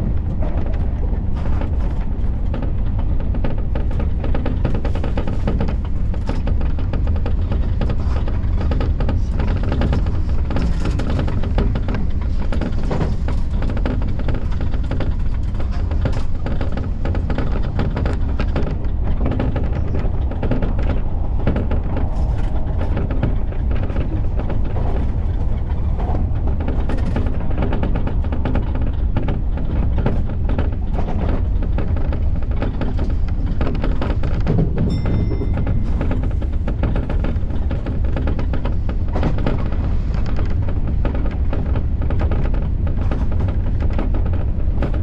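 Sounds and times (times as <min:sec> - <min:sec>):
train rumbling: 0:00.0 - 0:45.0
wheels clattering over track: 0:00.0 - 0:45.0.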